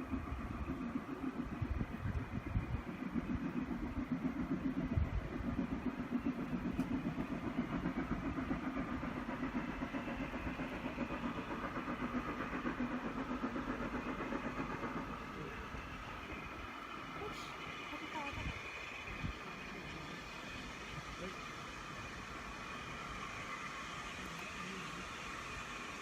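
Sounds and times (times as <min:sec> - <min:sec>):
train engine throbbing: 0:00.0 - 0:26.0.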